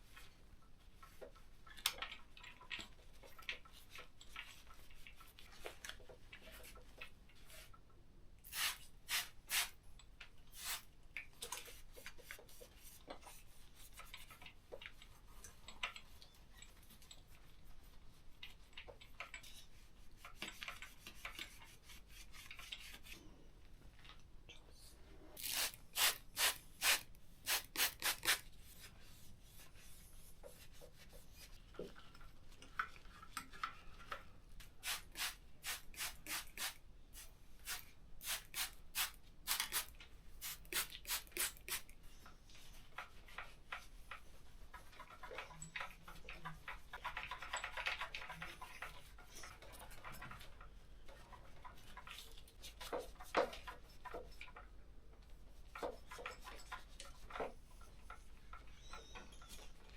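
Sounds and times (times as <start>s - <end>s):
scrubbing bicycle parts by hand: 8.5s - 9.8s, 25.4s - 28.4s.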